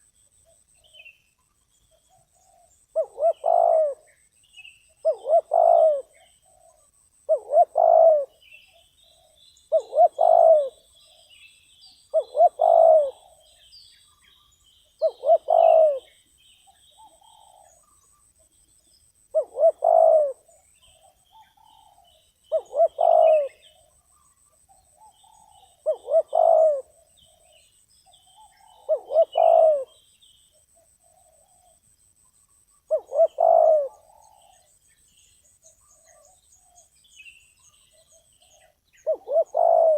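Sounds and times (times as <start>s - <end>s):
small birds chirping: 0.0s - 39.9s
dove cooing: 2.1s - 4.1s, 5.0s - 11.4s, 12.1s - 13.6s, 15.0s - 16.2s, 17.0s - 18.0s, 19.3s - 30.0s, 32.9s - 34.7s, 37.9s - 39.9s.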